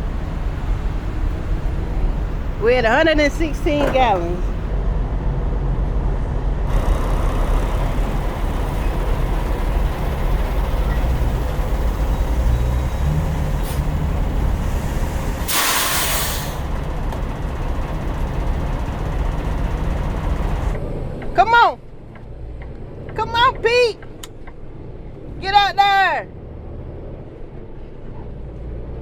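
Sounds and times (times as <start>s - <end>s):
truck diesel engine rumbling: 0.0s - 25.7s
air brake hiss: 14.7s - 16.7s
short air hiss: 15.4s - 16.6s.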